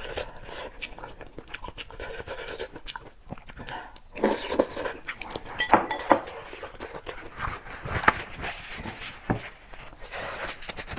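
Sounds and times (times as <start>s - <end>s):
person chewing food: 0.0s - 7.6s.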